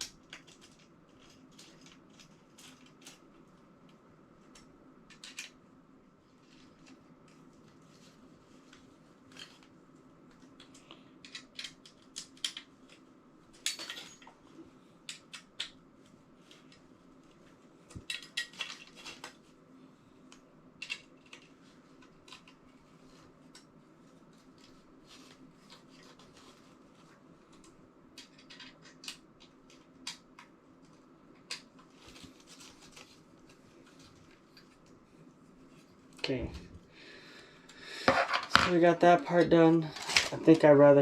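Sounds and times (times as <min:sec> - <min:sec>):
faint steady hum: 0:00.0 - 0:41.0
small metal parts clinking: 0:13.6 - 0:14.3.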